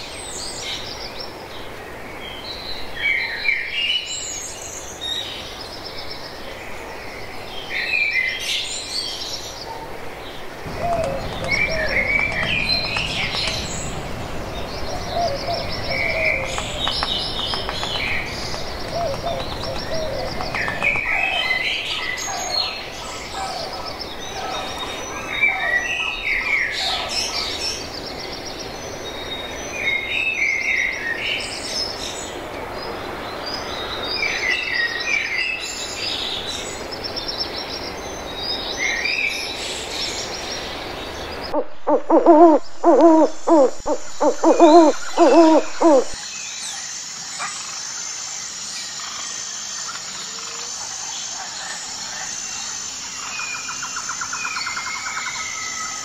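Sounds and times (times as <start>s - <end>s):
birds chirping and trilling: 0.0s - 56.0s
steady outdoor hiss: 0.0s - 56.0s
low bird calls: 9.6s - 27.6s, 41.2s - 46.2s.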